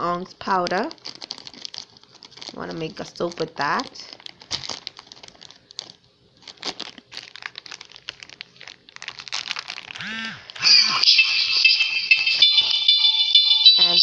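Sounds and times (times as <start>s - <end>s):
plastic packaging crinkling: 0.4s - 10.7s
background music with bell tones: 10.6s - 14.0s.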